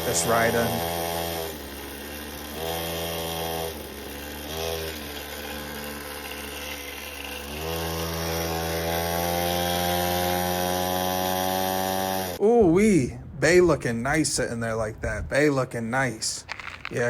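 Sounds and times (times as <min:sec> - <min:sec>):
mini bike engine revving: 0:00.0 - 0:12.4.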